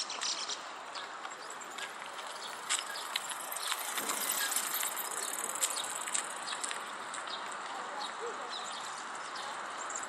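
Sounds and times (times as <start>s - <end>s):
outdoor background noise: 0.0s - 10.0s
small birds chirping: 0.0s - 10.0s.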